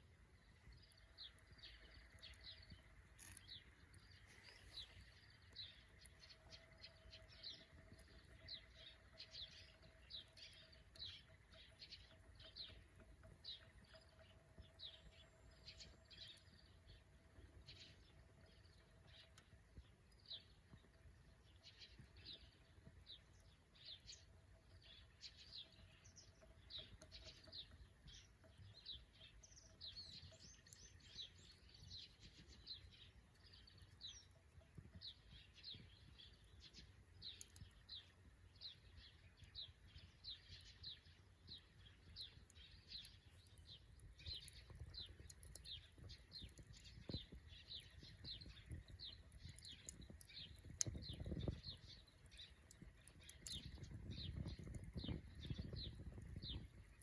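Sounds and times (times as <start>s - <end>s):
faint birds chirping: 0.0s - 57.0s.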